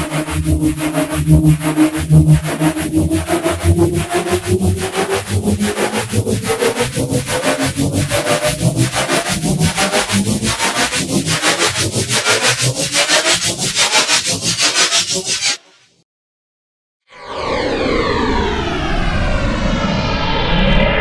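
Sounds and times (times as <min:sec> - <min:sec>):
pulsing synthetic hum: 0:00.0 - 0:15.5, 0:17.2 - 0:21.0
faint rising tone: 0:17.1 - 0:21.0.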